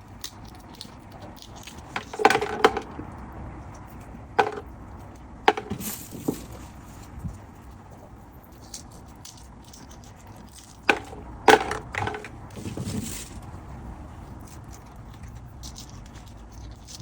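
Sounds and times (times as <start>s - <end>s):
sharp snaps and knocks: 0.0s - 3.2s
soft rustle: 5.6s - 8.0s, 12.2s - 14.4s.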